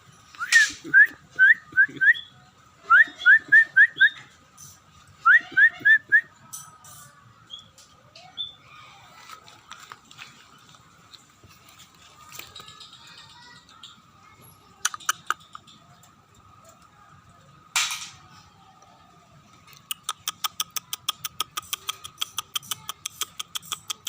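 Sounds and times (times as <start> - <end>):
bird whistling song: 0.4 - 6.4, 7.5 - 8.7.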